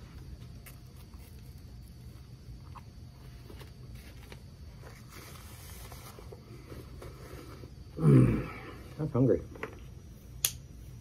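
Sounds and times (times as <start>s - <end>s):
steady low hum: 0.0s - 11.0s
faint chewing and mouth sounds: 0.4s - 3.6s
paper napkin rustle: 3.3s - 6.4s.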